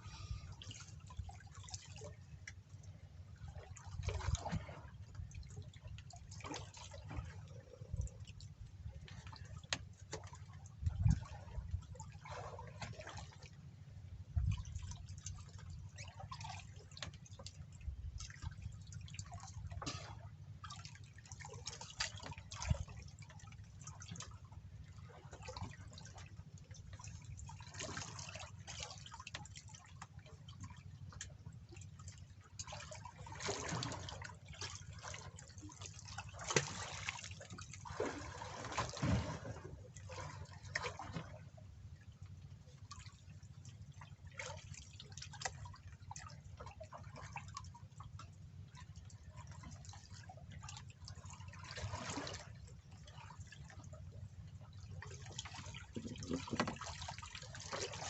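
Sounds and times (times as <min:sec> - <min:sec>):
water dripping and splashing: 0:32.1 - 0:39.6.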